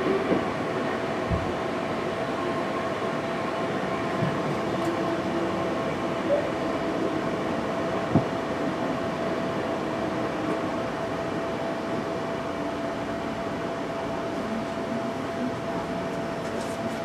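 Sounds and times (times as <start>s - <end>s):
train rumbling: 0.0s - 17.0s
train knocks: 1.2s - 1.6s, 4.1s - 4.6s, 8.0s - 8.4s.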